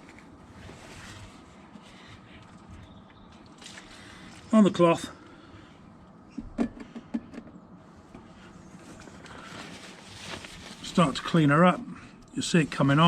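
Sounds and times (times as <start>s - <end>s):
cloth rustling: 8.7s - 11.8s.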